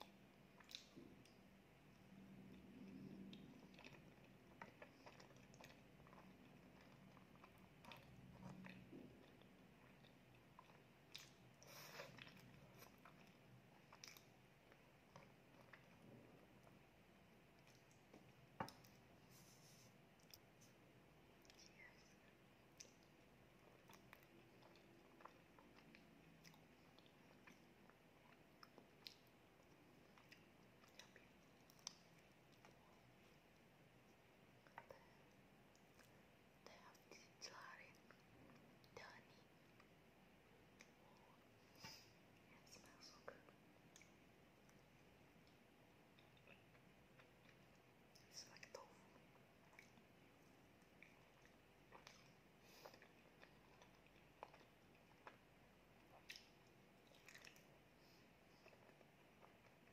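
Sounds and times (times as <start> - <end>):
low steady hum: 0.0 - 59.9
soft chewing: 0.0 - 59.9.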